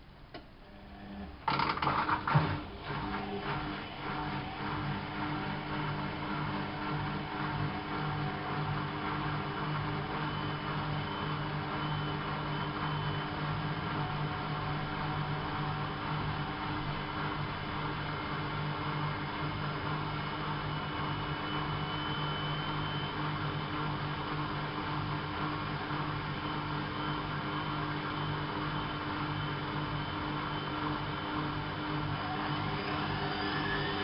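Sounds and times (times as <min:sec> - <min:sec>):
washing machine motor hum: 0:00.6 - 0:34.0
faint high whine: 0:09.8 - 0:16.8, 0:20.5 - 0:23.7, 0:26.9 - 0:34.0.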